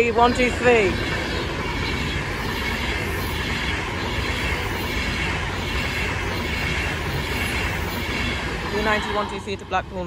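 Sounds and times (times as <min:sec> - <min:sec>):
electric train passing at speed: 0:00.0 - 0:10.0.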